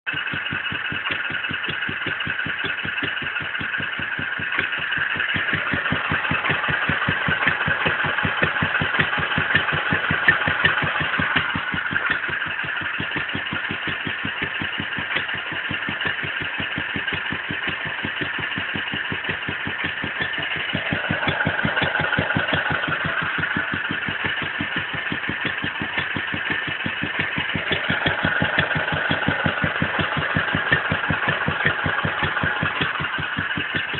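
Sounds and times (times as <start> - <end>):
engine running steadily: 0.0 - 33.9.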